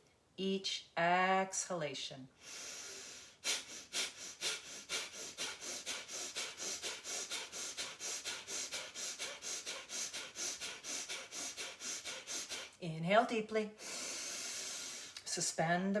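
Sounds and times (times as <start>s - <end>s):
rapid forceful nasal exhalations: 2.4s - 12.8s, 13.8s - 15.2s.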